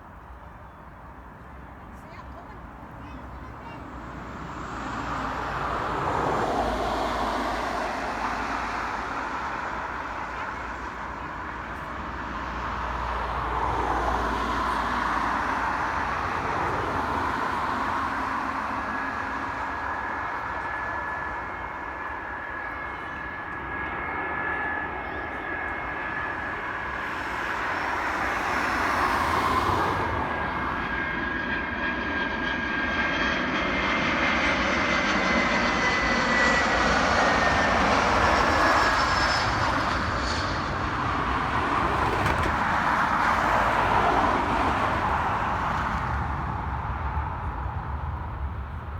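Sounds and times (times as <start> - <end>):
airliner engines rumbling: 0.0 - 48.9.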